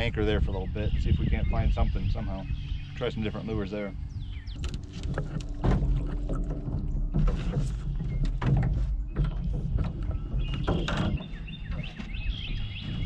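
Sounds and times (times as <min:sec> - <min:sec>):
birds chirping: 0:00.0 - 0:13.0
wind rumble on microphone: 0:00.0 - 0:13.0
wooden knocks in a rowboat: 0:04.2 - 0:13.0.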